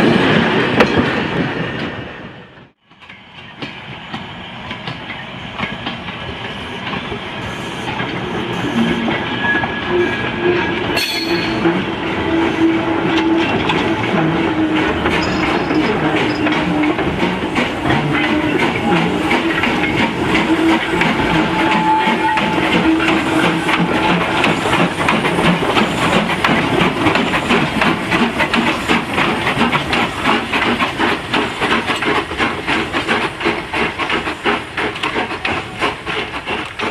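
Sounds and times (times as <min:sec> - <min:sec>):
train wheels clacking over rail joints: 0:10.8 - 0:36.9.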